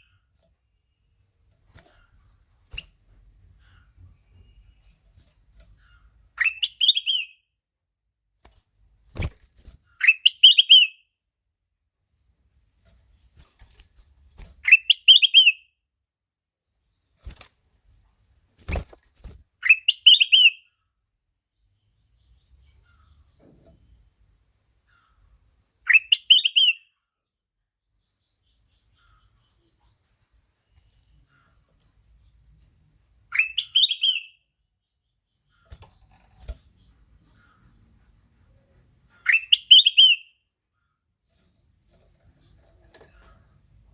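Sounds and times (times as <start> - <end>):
bird singing trilled phrase: 33.4 - 34.3.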